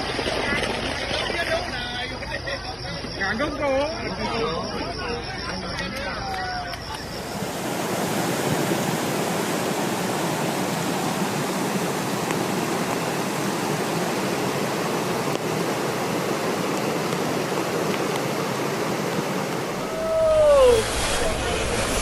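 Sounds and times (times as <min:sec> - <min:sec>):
floodwater rushing: 0:07.0 - 0:22.0.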